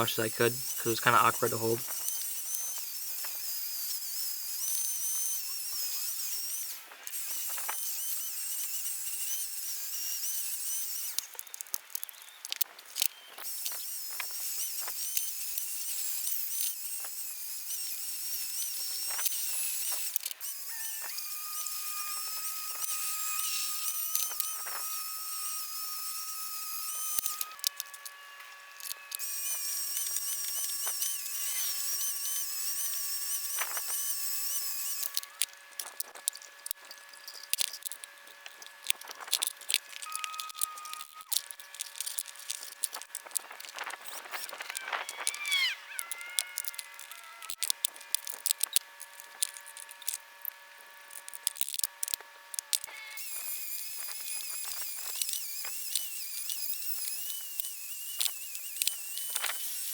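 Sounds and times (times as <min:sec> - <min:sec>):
steady held tones: 0:00.0 - 0:01.8
wire wheel scratching metal: 0:18.7 - 0:52.1.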